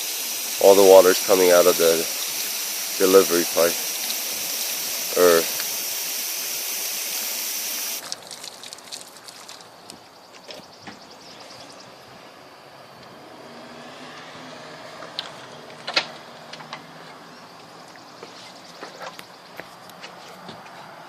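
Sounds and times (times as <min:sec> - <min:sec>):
water running through a pipe: 0:00.0 - 0:10.0.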